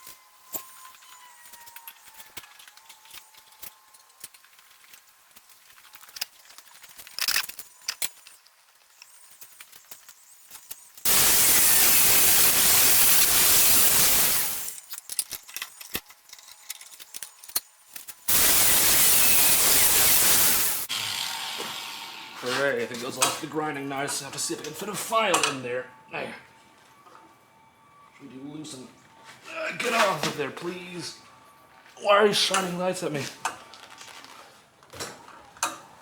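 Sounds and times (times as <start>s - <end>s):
faint clicks and handling: 0.5s - 11.0s, 14.8s - 18.2s
power grinder grinding steel: 11.1s - 14.8s, 18.3s - 23.1s.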